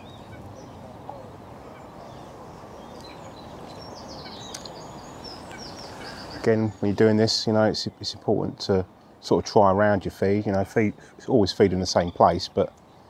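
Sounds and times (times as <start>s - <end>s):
low background noise: 0.0s - 13.0s
small birds chirping: 0.0s - 13.0s.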